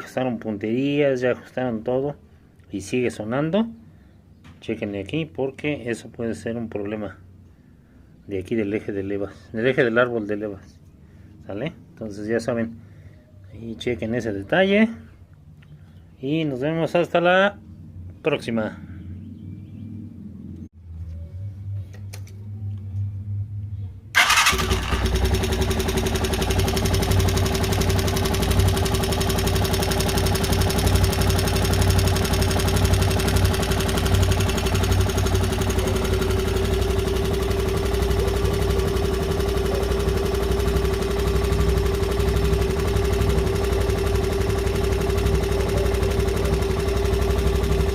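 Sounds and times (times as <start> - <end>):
car engine running with whine: 24.5 - 47.9.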